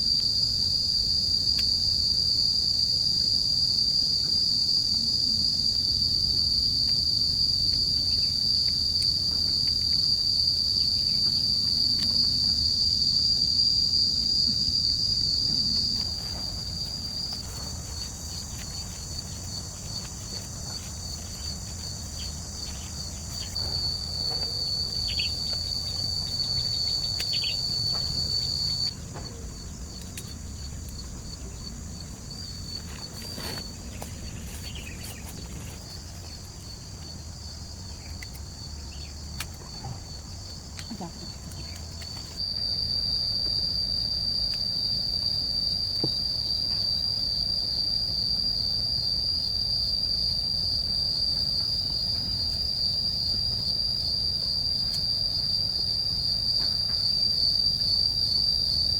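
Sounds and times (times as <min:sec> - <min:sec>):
high-pitched insect drone: 0:10.1 - 0:35.3.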